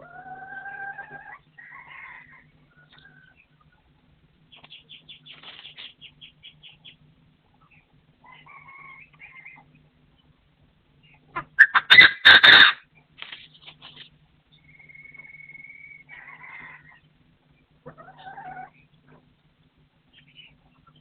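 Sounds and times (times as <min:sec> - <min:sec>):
wings flapping: 0:05.3 - 0:05.9.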